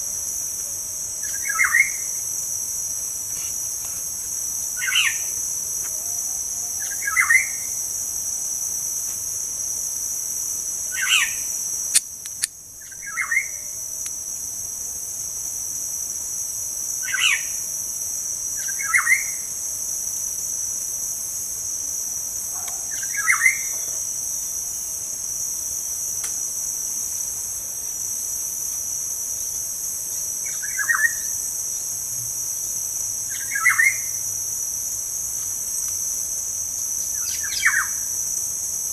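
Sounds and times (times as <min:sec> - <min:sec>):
insects droning: 0:00.0 - 0:38.9
click: 0:11.9 - 0:12.5.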